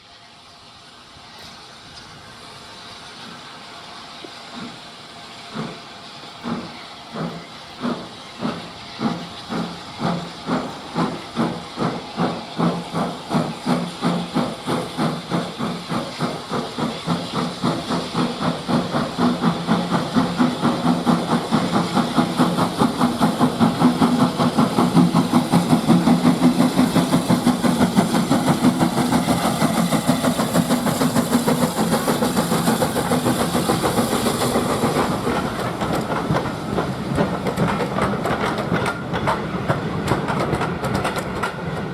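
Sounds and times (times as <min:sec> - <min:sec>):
steam hissing: 0:00.0 - 0:41.9
steam locomotive chuffing: 0:00.0 - 0:41.9.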